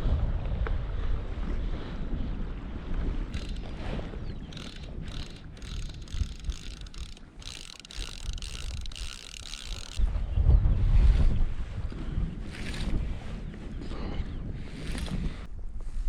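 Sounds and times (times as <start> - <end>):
wind rumble on microphone: 0.0 - 16.0
fishing reel ratchet clicking: 3.3 - 10.0.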